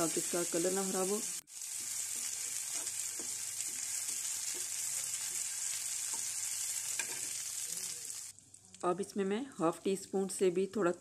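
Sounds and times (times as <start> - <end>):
garlic sizzling in butter: 0.0 - 8.8
spoon stirring in a pan: 1.6 - 7.9.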